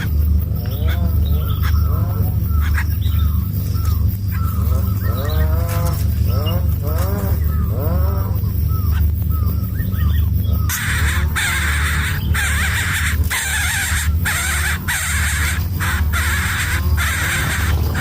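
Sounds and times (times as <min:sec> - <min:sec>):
low hum: 0:00.0 - 0:18.0
nestlings rasping calls: 0:00.0 - 0:18.0.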